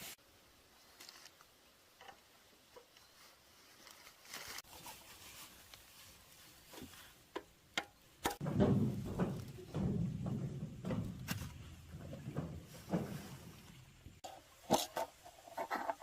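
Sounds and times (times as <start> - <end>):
brief rustle: 3.0 - 7.1
low thud: 8.3 - 14.1.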